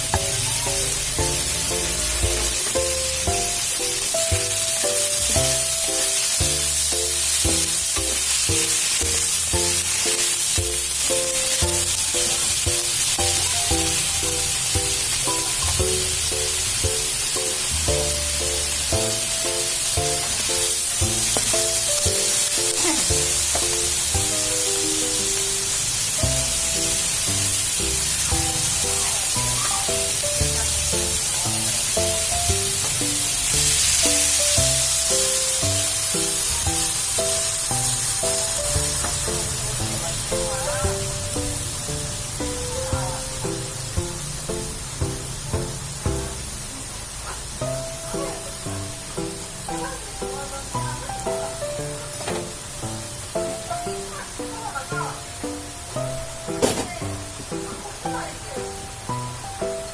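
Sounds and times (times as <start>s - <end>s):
background music with beat: 0.0s - 39.3s
oil sizzling in a pan: 0.0s - 59.9s.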